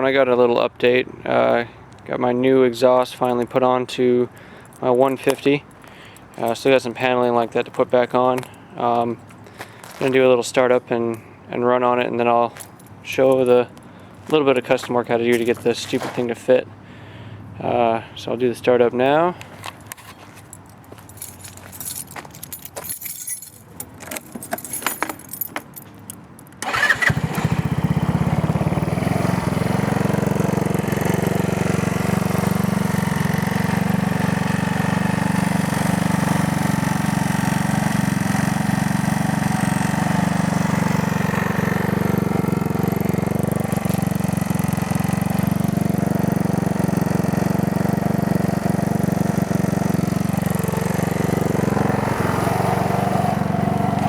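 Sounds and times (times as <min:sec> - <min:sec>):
clicks and rattles: 0:19.7 - 0:26.7
scooter engine starting and running: 0:26.6 - 0:54.0.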